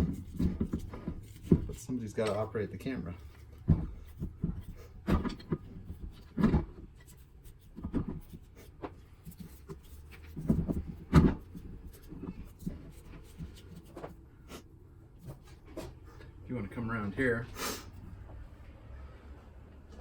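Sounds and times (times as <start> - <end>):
heavy steel parts clunking: 0.0 - 7.1.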